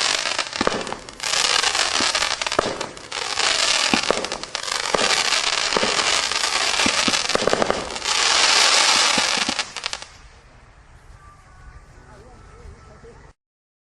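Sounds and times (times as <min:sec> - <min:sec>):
firework pops: 0:00.0 - 0:10.1
fireworks crackling and hissing: 0:00.0 - 0:11.2.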